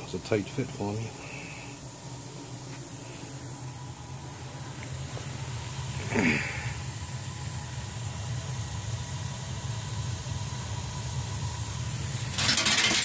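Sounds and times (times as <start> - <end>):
gas boiler rumbling: 0.0 - 13.0
metallic clatter: 12.3 - 13.0.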